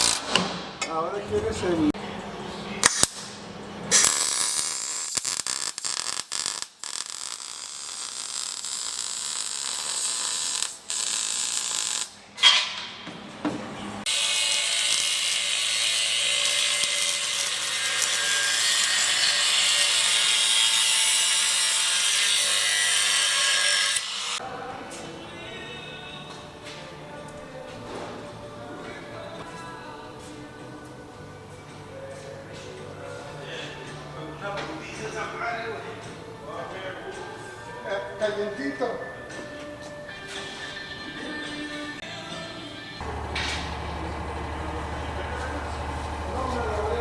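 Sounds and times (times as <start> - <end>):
welding arc crackling: 0.0 - 0.4, 2.8 - 12.2, 14.1 - 22.7.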